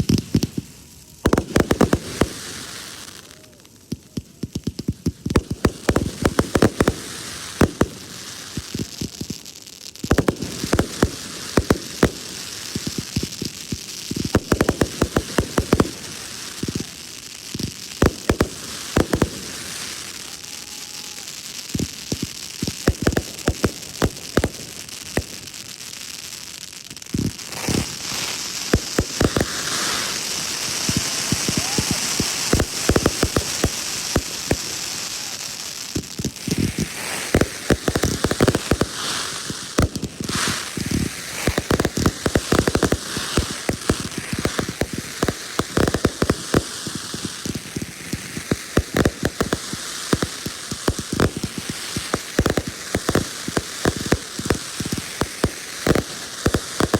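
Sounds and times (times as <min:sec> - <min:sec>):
fireworks crackling and popping: 0:00.0 - 0:56.9
hiss: 0:27.2 - 0:56.9.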